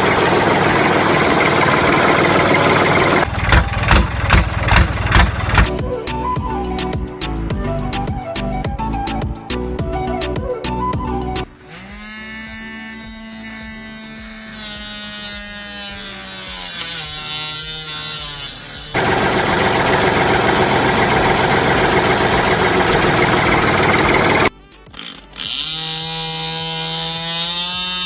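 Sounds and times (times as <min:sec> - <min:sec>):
loud rough noise: 0:00.0 - 0:05.7, 0:19.0 - 0:24.5
small motor whining: 0:11.4 - 0:28.0.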